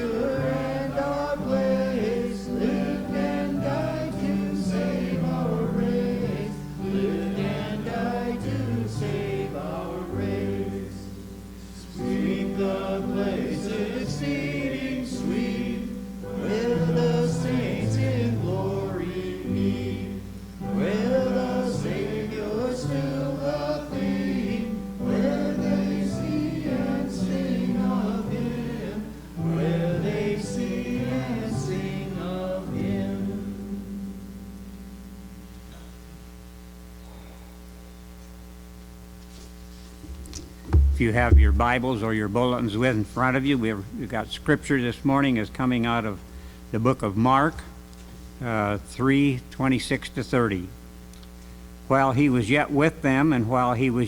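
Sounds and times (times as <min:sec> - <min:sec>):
congregation singing a hymn: 0:00.0 - 0:35.0.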